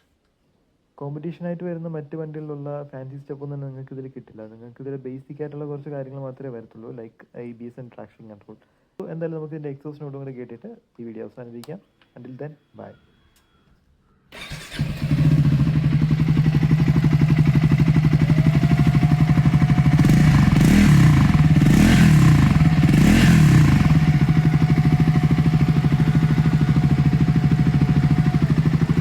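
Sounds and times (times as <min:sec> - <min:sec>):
motorcycle engine starting and idling: 0:14.3 - 0:29.0
motorcycle engine revving: 0:14.4 - 0:29.0.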